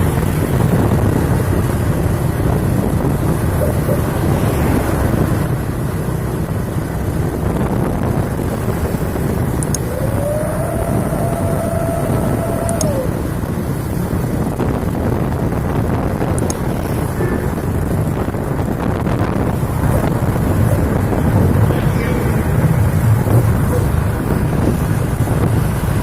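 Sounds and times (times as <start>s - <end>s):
heavy truck engine rumbling: 0.0s - 26.0s
wind buffeting microphone: 0.0s - 26.0s
howling exhaust whistle: 9.7s - 13.7s, 19.9s - 24.6s.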